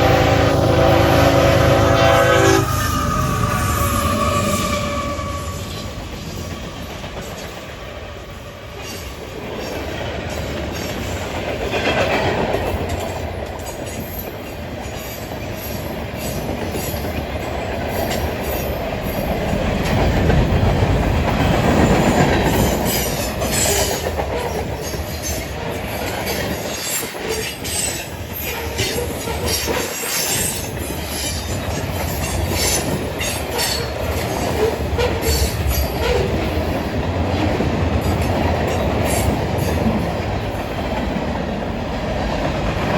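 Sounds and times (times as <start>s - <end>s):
train rumbling past: 0.0s - 42.9s
wheel squeal: 2.4s - 6.0s
wheels clicking over rail joints: 8.8s - 42.9s.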